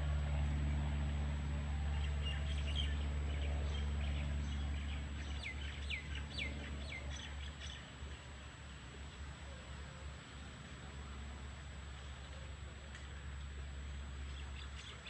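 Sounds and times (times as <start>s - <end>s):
low steady rumble: 0.0s - 15.0s
birds chirping: 2.0s - 8.1s, 14.2s - 15.0s.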